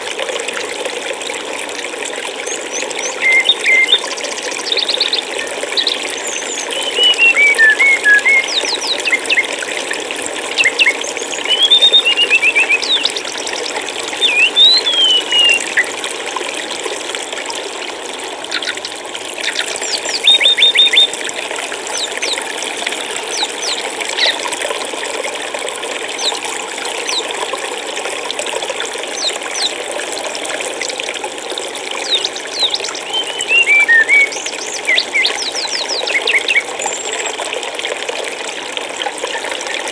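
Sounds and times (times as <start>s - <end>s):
stream water rushing: 0.0s - 39.9s
small birds chirping: 2.5s - 9.6s, 10.5s - 15.9s, 18.5s - 21.1s, 21.9s - 22.4s, 29.2s - 29.8s, 32.0s - 37.3s.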